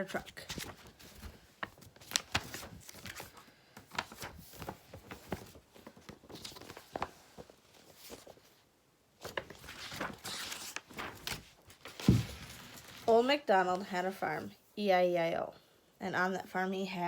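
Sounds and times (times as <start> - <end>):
paper-like rustling: 0.0 - 8.6, 9.2 - 13.2.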